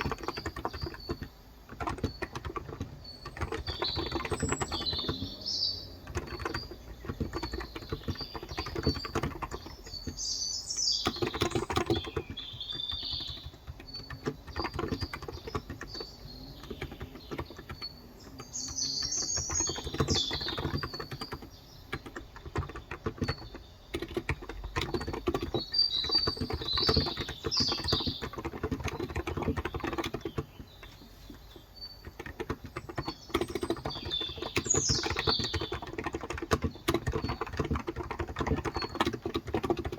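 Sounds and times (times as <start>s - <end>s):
birds chirping: 0.0s - 39.9s
typing on a keyboard: 0.0s - 39.9s.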